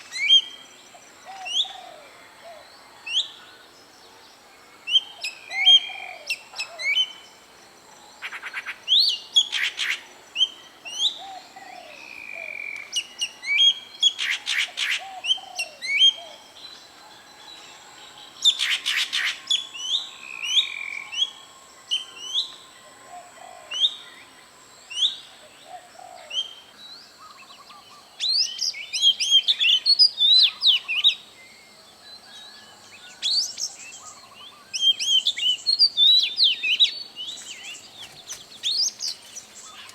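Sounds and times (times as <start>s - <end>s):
faint high whine: 16.3s - 25.7s
birds chirping: 33.7s - 39.9s.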